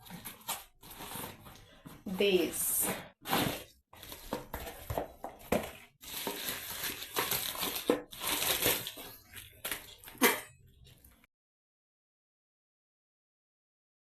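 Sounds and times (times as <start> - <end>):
packaging crinkling: 4.0 - 10.3.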